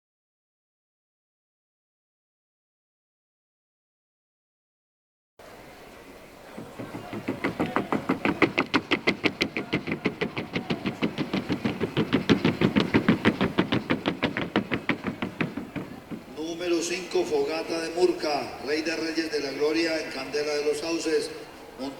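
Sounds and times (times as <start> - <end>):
hoofbeats on wooden board: 6.5 - 17.1.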